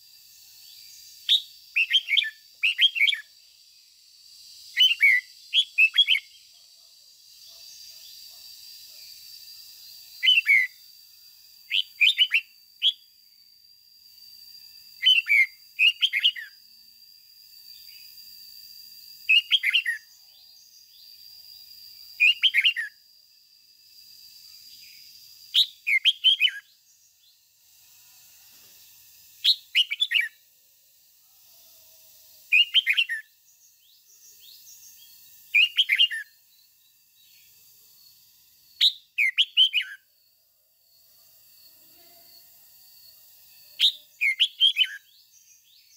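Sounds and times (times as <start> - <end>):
bird singing short bursts: 1.2 - 3.3, 4.7 - 6.4, 10.2 - 10.8, 11.7 - 13.1, 15.0 - 16.5, 25.5 - 26.7, 29.4 - 30.4, 32.5 - 33.2, 35.5 - 36.2, 38.8 - 40.0, 43.8 - 45.1.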